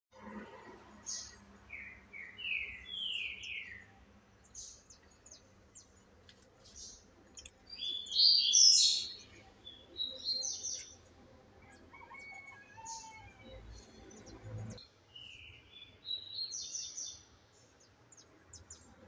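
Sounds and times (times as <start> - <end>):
songbirds whistling and chirping: 1.1 - 3.9, 7.7 - 11.0, 11.6 - 14.4.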